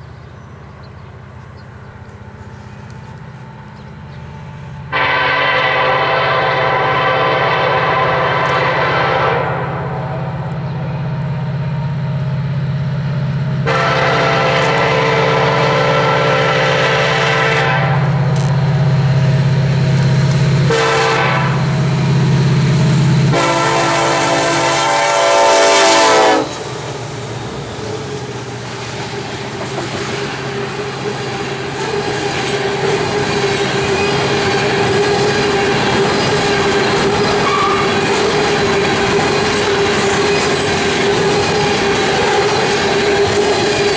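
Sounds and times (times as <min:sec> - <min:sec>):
freight cars clickety-clack: 0:00.0 - 0:05.0, 0:26.0 - 0:43.9
diesel locomotive engine drone: 0:00.0 - 0:43.9
train air horn blasts: 0:04.6 - 0:11.1, 0:13.6 - 0:19.5, 0:20.2 - 0:27.2, 0:31.8 - 0:43.9.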